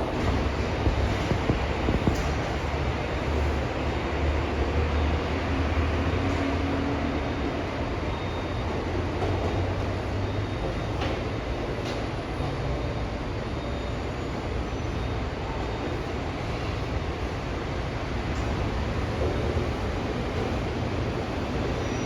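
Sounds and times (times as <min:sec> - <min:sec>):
monorail train running: 0:00.0 - 0:22.0.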